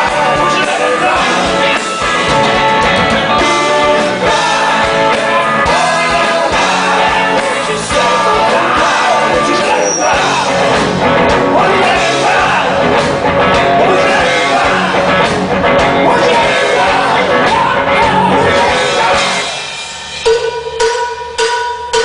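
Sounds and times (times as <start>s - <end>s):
rock band playing live: 0.0s - 22.0s
metallic struck hits: 19.2s - 22.0s.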